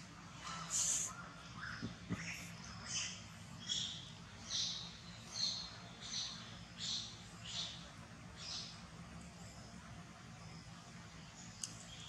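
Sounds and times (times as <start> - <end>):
bird chirping: 0.8 - 9.8.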